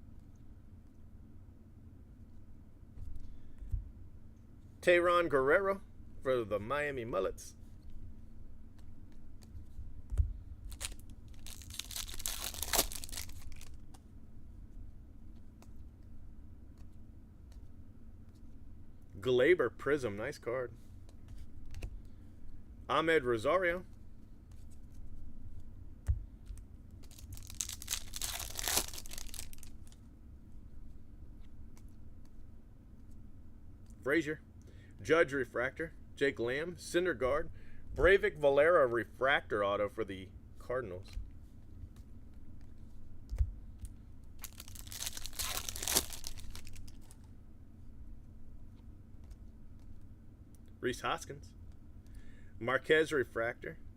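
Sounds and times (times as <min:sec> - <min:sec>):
foil wrapper tearing and crinkling: 0:10.7 - 0:13.8, 0:27.0 - 0:30.0, 0:44.4 - 0:47.2.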